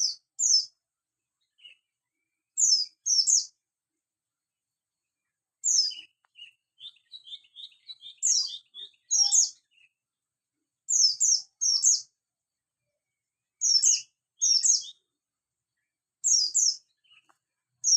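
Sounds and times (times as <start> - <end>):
bird high rapid chirps: 0.0 - 0.8, 1.4 - 1.9, 2.5 - 3.6, 5.6 - 10.0, 10.9 - 12.1, 13.6 - 15.1, 16.2 - 17.9
soft low bird twittering: 0.0 - 3.6, 4.9 - 17.9.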